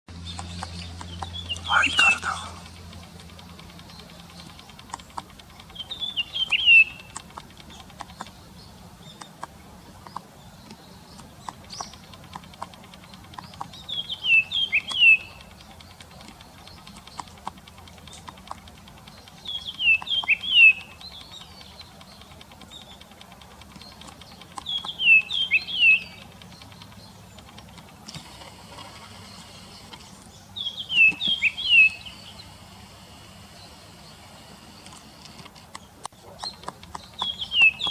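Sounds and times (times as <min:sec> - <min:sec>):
bird calls with falling notes: 0:00.2 - 0:02.8, 0:05.5 - 0:08.4, 0:10.1 - 0:17.4, 0:19.0 - 0:27.9, 0:29.1 - 0:32.6, 0:33.5 - 0:37.9.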